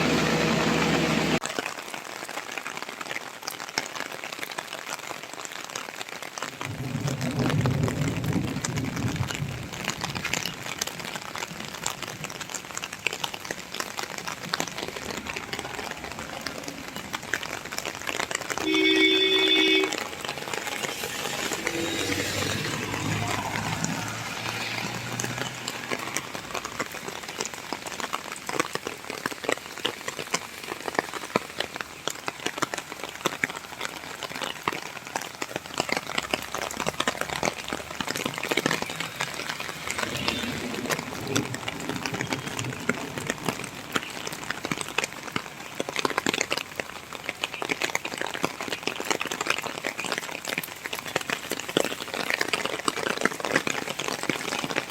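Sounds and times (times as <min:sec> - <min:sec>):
rain falling steadily: 0:00.0 - 0:54.9.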